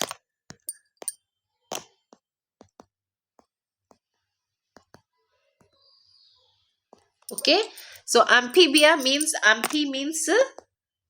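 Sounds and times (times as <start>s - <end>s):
faint sharp clicks and taps: 4.7s - 5.8s.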